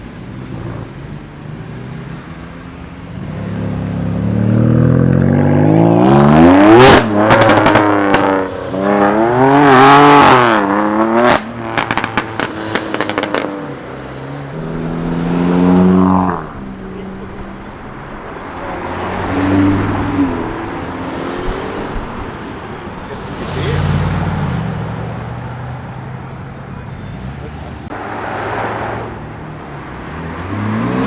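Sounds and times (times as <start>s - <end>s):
car engine accelerating hard: 0.0s - 31.0s
exhaust pops and crackles: 6.7s - 9.1s, 9.9s - 14.6s.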